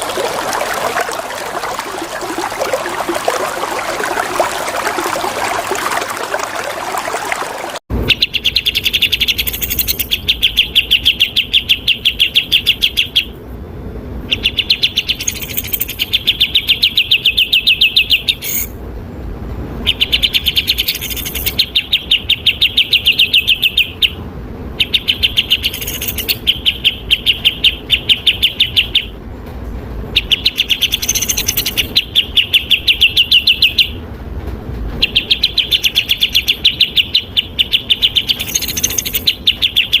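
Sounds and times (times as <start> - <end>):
flowing water: 0.0 - 7.9
songbird trilling: 8.1 - 13.3, 14.3 - 18.7, 24.8 - 29.1, 30.2 - 34.0, 35.0 - 40.0.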